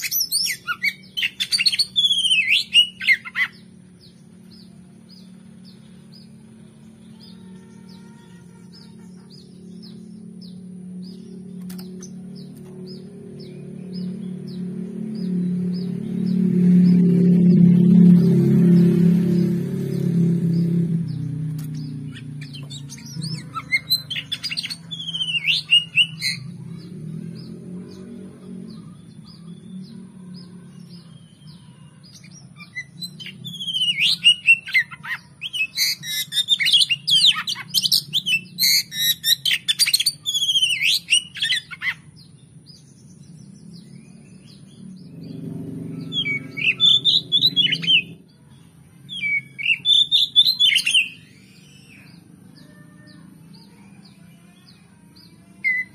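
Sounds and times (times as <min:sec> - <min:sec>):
bird singing whistles and chatter: 0:00.0 - 0:06.4, 0:20.6 - 0:28.1, 0:28.7 - 0:45.4, 0:46.0 - 0:48.2, 0:49.1 - 0:55.9.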